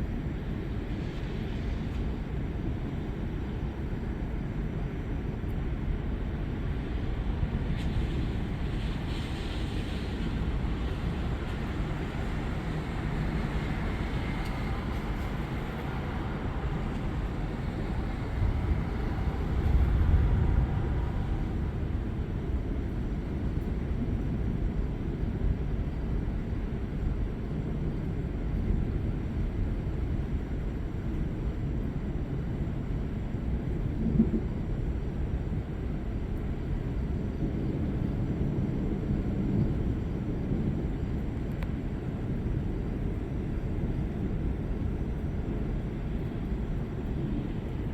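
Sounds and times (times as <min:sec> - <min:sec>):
storm noise: 0:06.6 - 0:24.6
thunder rumbling: 0:10.0 - 0:23.1
faint click: 0:41.5 - 0:41.8.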